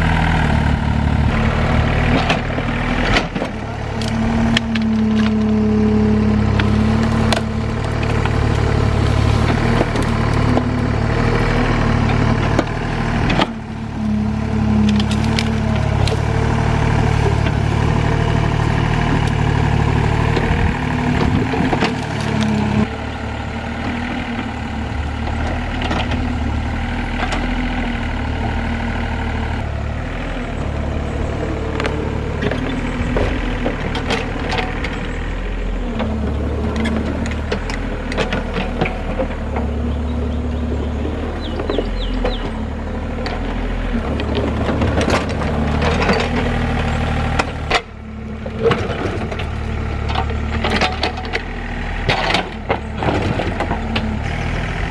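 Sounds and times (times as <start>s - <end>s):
excavator diesel engine running: 0.0s - 54.9s
knocks and clanks: 31.7s - 35.0s.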